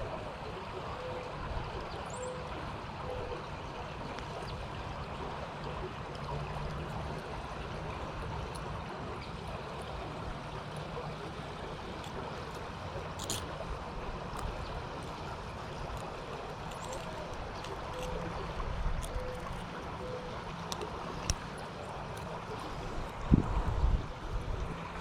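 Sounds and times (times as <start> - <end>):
water rushing: 0.0 - 25.0
wind buffeting microphone: 22.8 - 24.8.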